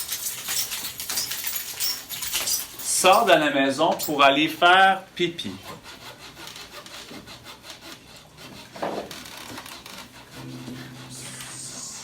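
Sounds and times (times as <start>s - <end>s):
rasping scrape like saw on wood: 5.4s - 10.6s
low steady tone: 10.4s - 12.0s.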